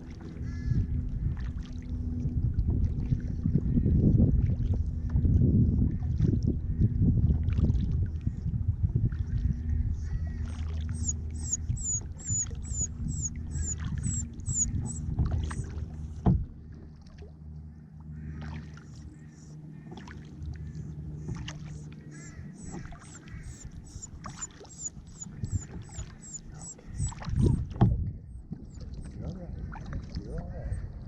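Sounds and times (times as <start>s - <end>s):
low rumble: 0.8s - 18.1s, 18.7s - 31.0s
bird call notes: 10.5s - 15.7s, 21.7s - 27.6s
paddle knocking against hull: 16.1s - 16.6s, 27.2s - 29.1s.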